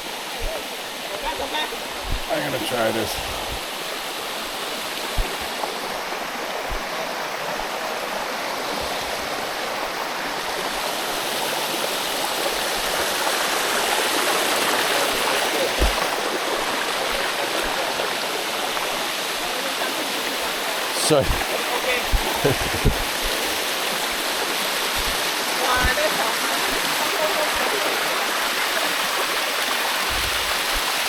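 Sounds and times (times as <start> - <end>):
waterfall rushing over rock: 0.0 - 31.0
low thumps: 15.8 - 16.2.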